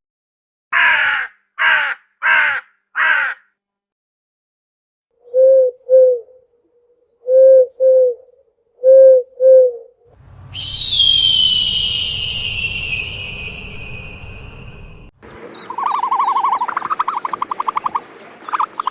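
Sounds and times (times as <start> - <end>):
owl hooting: 5.2 - 9.9, 10.6 - 14.2, 15.6 - 18.9
low rumble: 10.0 - 15.8
high sliding whistle-like call: 10.4 - 15.1.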